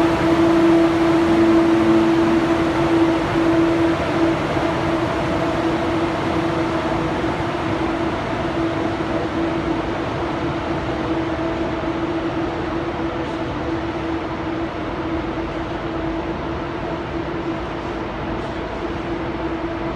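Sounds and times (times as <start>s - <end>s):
mid-pitched hum: 0.0s - 14.9s
train rumbling: 0.0s - 19.9s.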